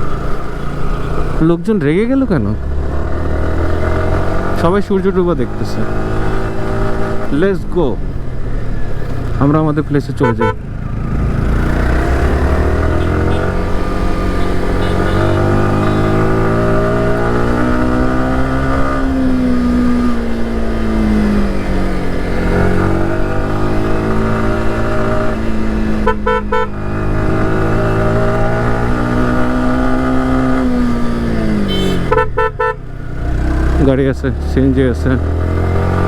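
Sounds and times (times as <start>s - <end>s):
motorcycle engine running: 0.0s - 36.0s
horn toot: 10.2s - 10.7s, 11.9s - 17.0s, 25.9s - 26.8s, 31.5s - 32.9s.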